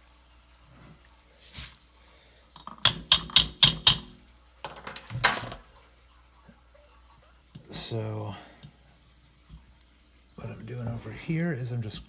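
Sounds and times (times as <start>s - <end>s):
containers knocking together: 2.6s - 5.7s.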